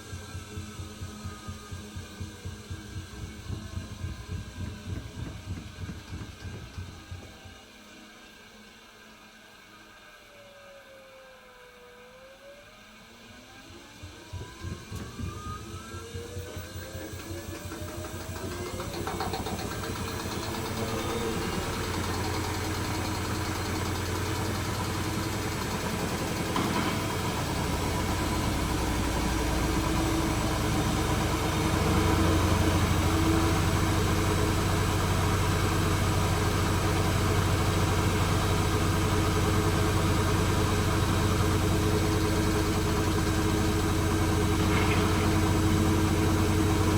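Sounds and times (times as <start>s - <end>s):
washing machine spinning: 0.0s - 7.7s, 13.8s - 46.9s
motor whine: 0.0s - 46.9s
low hum: 19.4s - 46.9s.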